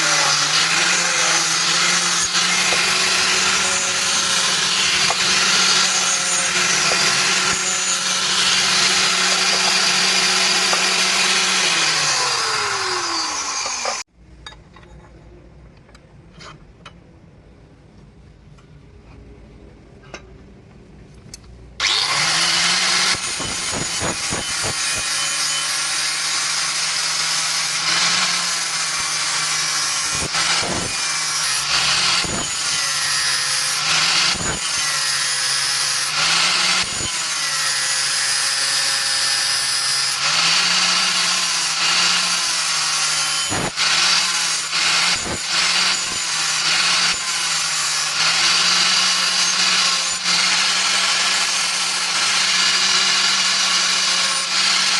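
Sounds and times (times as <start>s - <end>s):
electric power tool running: 0.0s - 14.1s, 21.8s - 54.9s.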